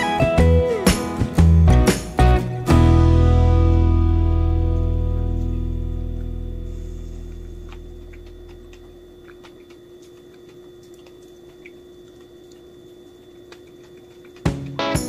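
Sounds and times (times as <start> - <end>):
faint steady hum: 2.8 - 15.0.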